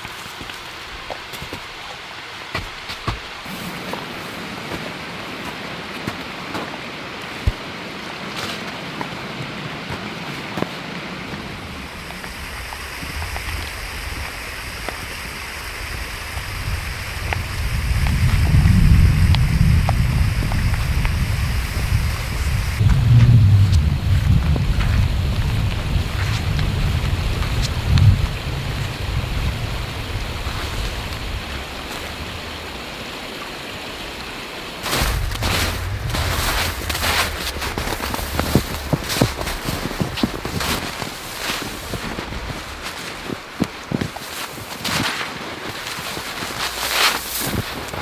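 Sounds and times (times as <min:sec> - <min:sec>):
steady rain hissing: 0:00.0 - 0:48.0
low wind rumble: 0:09.2 - 0:44.7.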